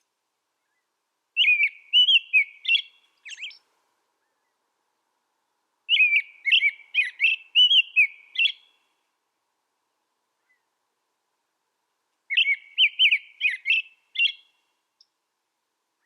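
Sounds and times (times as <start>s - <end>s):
songbird whistling: 0.6s - 3.6s, 5.9s - 8.8s, 12.3s - 14.6s.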